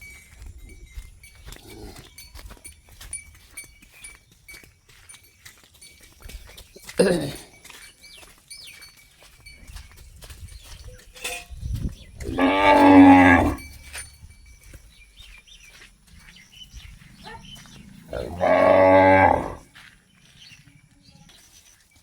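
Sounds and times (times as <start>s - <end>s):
cow mooing: 12.2s - 13.6s, 17.7s - 19.6s.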